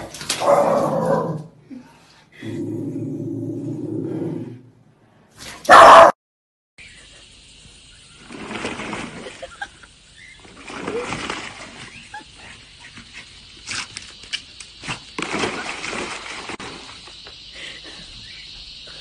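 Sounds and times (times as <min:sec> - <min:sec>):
dog splashing in water: 0:08.2 - 0:09.7, 0:10.4 - 0:12.5, 0:13.6 - 0:17.2.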